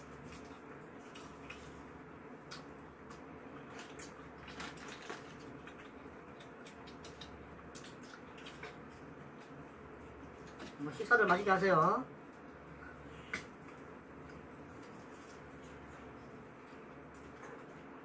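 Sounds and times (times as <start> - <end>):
wet chewing and lip-smacking: 0.0 - 10.8
low room hum: 0.0 - 18.0.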